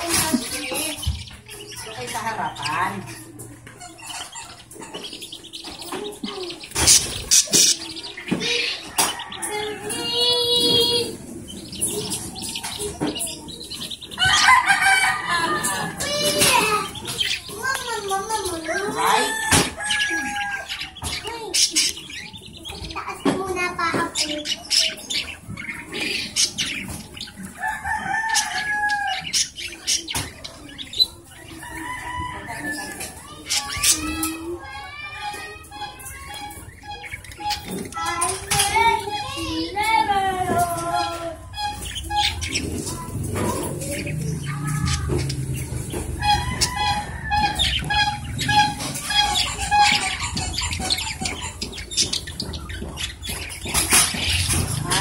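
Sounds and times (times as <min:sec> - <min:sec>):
rooster crowing: 0:14.2 - 0:15.8, 0:46.2 - 0:48.3.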